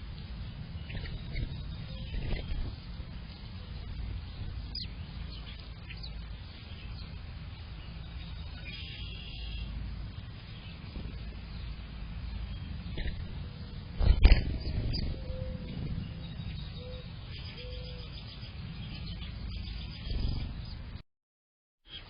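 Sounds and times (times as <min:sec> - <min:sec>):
songbirds chirping: 0:00.0 - 0:21.0
steady low rumble: 0:00.0 - 0:21.0
bird trill: 0:04.3 - 0:09.8, 0:12.3 - 0:20.9.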